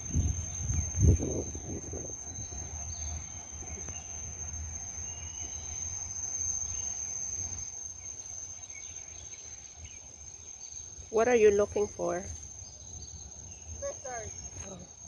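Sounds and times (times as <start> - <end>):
low rumble: 0.0 - 5.7
insects droning: 0.0 - 15.0.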